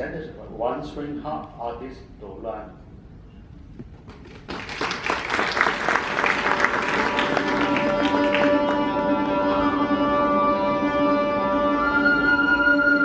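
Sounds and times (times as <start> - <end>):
audience applauding: 4.0 - 9.5.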